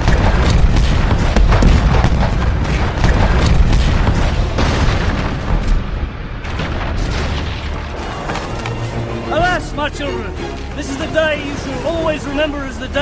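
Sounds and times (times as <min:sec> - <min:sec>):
cannon booms and explosions: 0:00.0 - 0:07.9
orchestral film music: 0:07.9 - 0:13.0.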